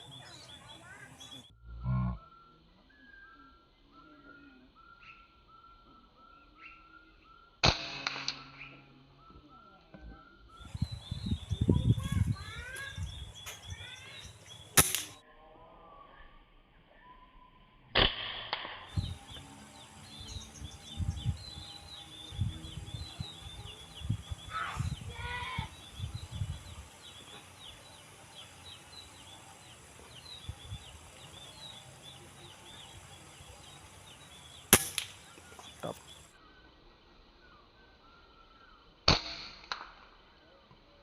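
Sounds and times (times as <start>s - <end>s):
small birds chirping: 0.0s - 7.6s, 8.4s - 15.2s, 18.9s - 39.0s
sharp gunshot crack: 7.6s - 8.6s, 14.8s - 15.2s, 18.0s - 19.0s, 34.7s - 35.3s, 39.1s - 40.0s.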